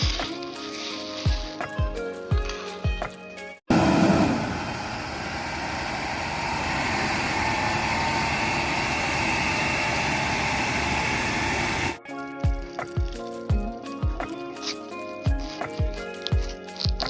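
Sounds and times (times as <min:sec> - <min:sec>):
vehicle engine running: 0:03.7 - 0:12.0.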